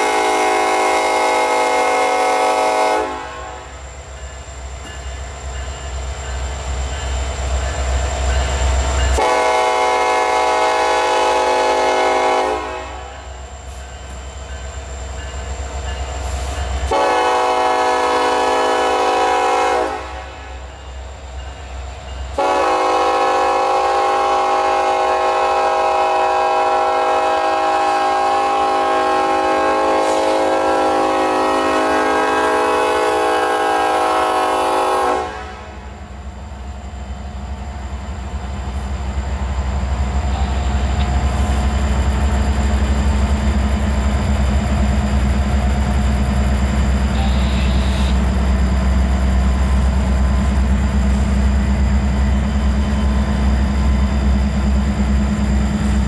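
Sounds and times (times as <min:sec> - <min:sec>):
locomotive air horn: 0:00.0 - 0:03.7, 0:09.1 - 0:13.3, 0:16.4 - 0:20.6, 0:22.4 - 0:35.9, 0:47.0 - 0:48.4
train cars rumbling on rails: 0:00.0 - 0:56.0.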